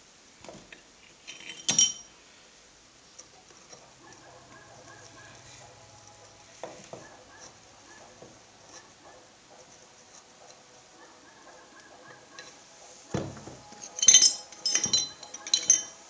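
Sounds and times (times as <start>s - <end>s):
metal tools clinking: 1.1s - 2.2s, 12.3s - 16.0s.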